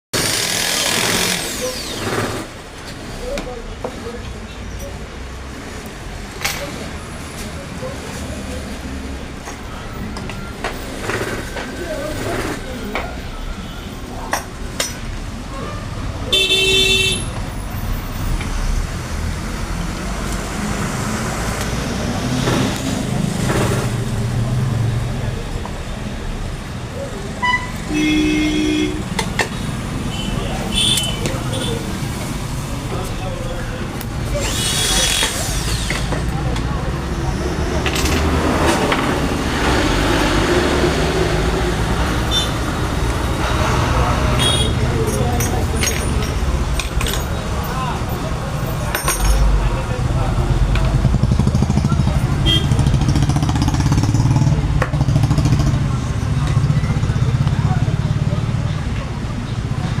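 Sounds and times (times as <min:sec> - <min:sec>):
road traffic noise: 0:00.1 - 1:00.0
vehicle horn: 0:16.3 - 0:17.3, 0:27.4 - 0:29.1, 0:30.1 - 0:31.8, 0:42.3 - 0:42.6, 0:44.4 - 0:44.8, 0:52.4 - 0:52.8.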